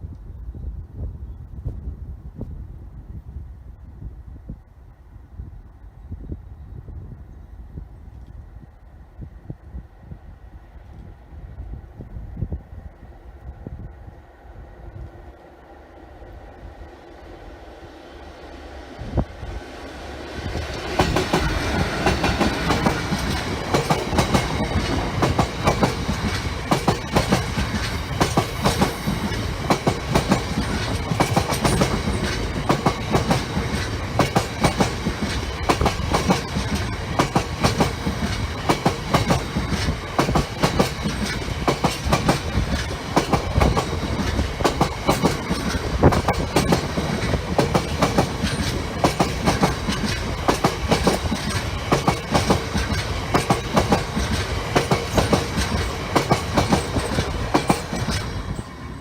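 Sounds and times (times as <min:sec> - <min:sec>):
train wheels clattering on rails: 0:20.4 - 0:59.0.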